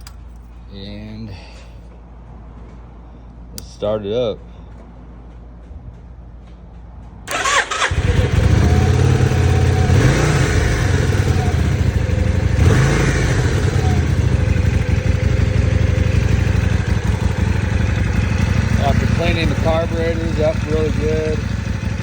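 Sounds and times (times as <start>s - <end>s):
electric starter cranking: 7.3s - 10.5s
motorcycle engine running: 7.3s - 22.0s.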